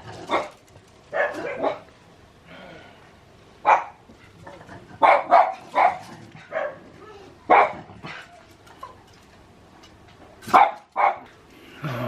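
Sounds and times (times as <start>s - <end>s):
dog barking: 0.3s - 1.9s, 3.6s - 4.0s, 5.0s - 6.9s, 7.5s - 7.9s, 10.5s - 11.3s.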